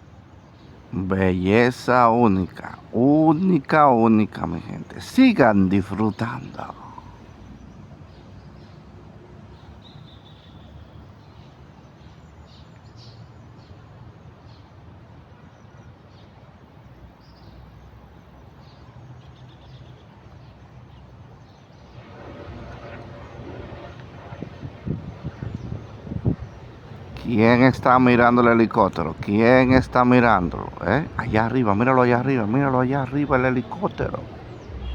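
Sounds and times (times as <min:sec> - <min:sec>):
low noise: 0:00.0 - 0:09.4, 0:21.8 - 0:34.9
low outdoor background hum: 0:00.0 - 0:34.9
small birds chirping: 0:00.4 - 0:08.9, 0:09.5 - 0:13.8, 0:24.5 - 0:34.9.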